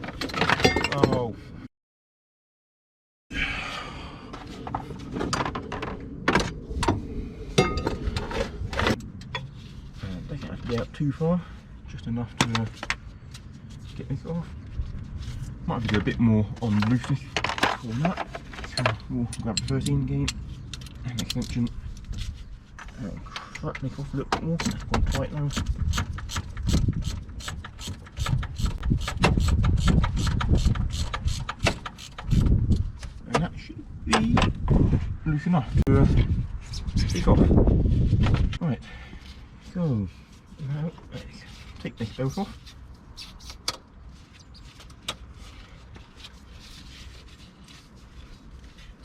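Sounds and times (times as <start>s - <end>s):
low background rumble: 3.4s - 43.2s
faint scraping and handling: 7.8s - 16.0s, 20.4s - 24.2s, 36.1s - 49.0s.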